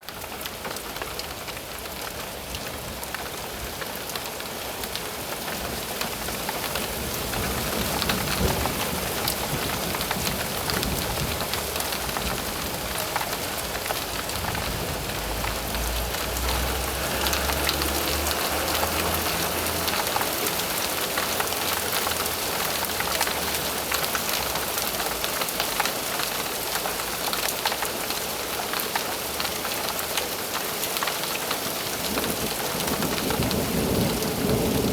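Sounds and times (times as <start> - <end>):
steady rain falling: 0.0 - 34.9
thunder rumbling: 7.4 - 23.6.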